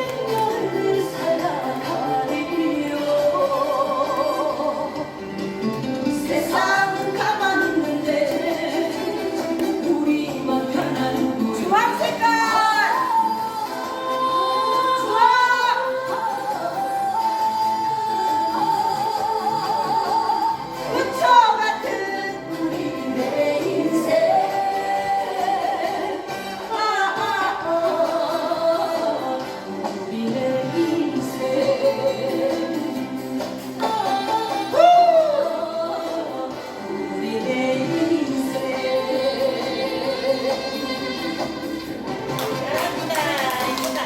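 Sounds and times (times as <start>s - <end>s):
music: 0.0s - 44.0s
person singing: 0.0s - 44.0s.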